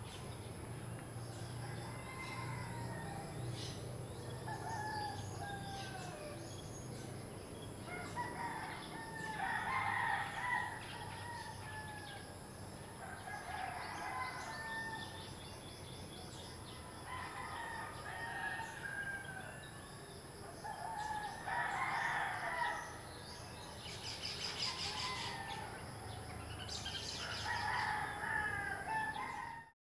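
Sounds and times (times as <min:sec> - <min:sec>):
roosters crowing: 0:01.2 - 0:06.5, 0:07.8 - 0:15.2, 0:17.0 - 0:19.8, 0:20.6 - 0:23.1, 0:24.5 - 0:29.7.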